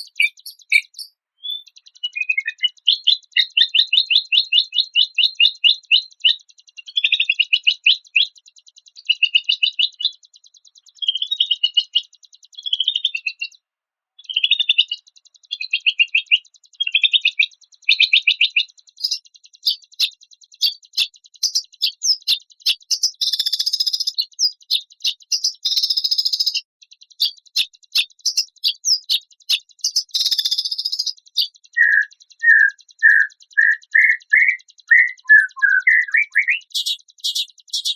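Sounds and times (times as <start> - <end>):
harsh raspy bird bursts: 0.0 - 1.1, 31.8 - 37.9
sharp bird chips: 0.0 - 2.8, 18.4 - 37.9
songbird trilled chirps: 0.0 - 8.4, 14.2 - 37.9.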